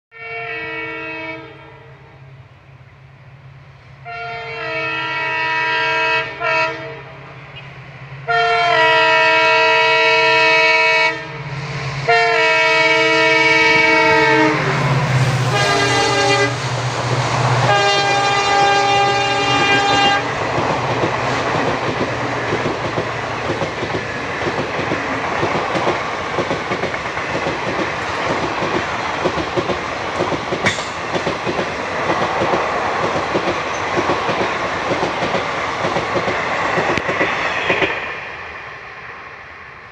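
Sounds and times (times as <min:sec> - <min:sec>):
locomotive horn blasts: 0:00.1 - 0:02.2, 0:04.0 - 0:11.4, 0:12.1 - 0:16.6, 0:17.6 - 0:20.4
train wheels clickety-clack: 0:14.7 - 0:38.2.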